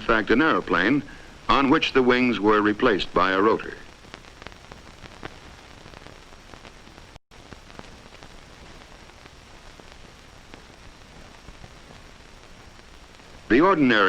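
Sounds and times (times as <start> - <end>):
old film soundtrack hiss and crackle: 0.0 - 14.0.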